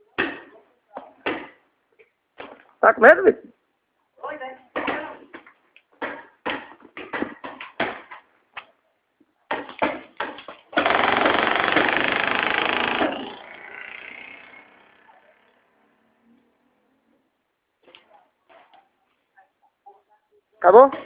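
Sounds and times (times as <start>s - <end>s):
rapid-fire paintball burst: 10.8s - 14.8s.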